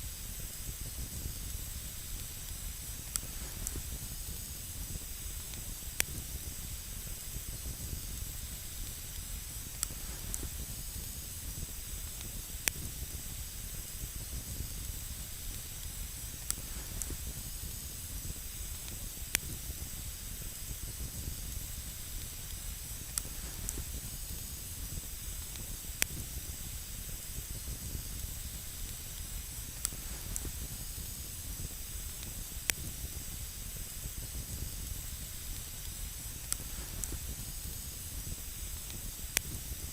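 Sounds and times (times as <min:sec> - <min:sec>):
campfire hiss and rumble: 0:00.0 - 0:39.9
crackling pops of fire: 0:00.1 - 0:39.9.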